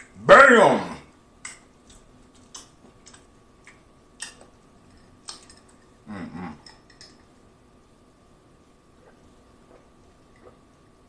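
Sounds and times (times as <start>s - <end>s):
chewing with wet mouth clicks: 1.4s - 4.6s
person humming: 6.0s - 6.7s.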